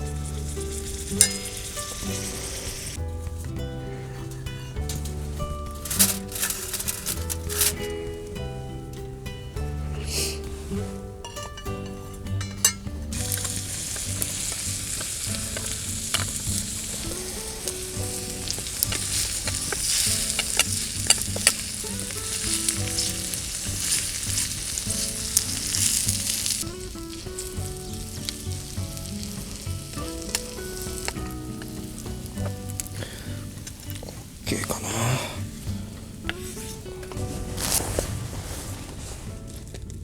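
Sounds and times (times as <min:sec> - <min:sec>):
food sizzling in frying pan: 0:00.0 - 0:38.8
utensil clicking in pan: 0:00.4 - 0:03.0, 0:11.2 - 0:34.4.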